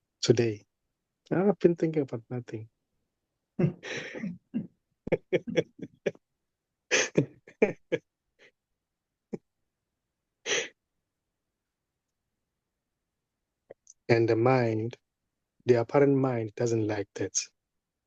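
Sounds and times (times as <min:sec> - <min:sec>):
person making short vocal sounds: 0:03.6 - 0:06.1, 0:06.9 - 0:08.0.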